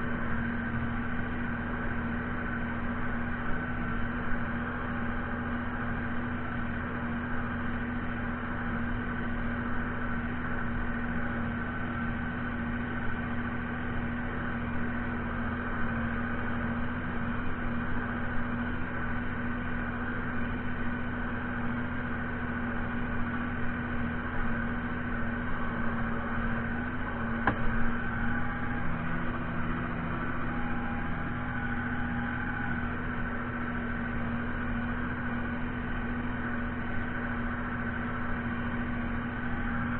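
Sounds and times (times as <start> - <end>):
tractor diesel engine drone: 0.0 - 39.9
sharp click: 27.4 - 27.7.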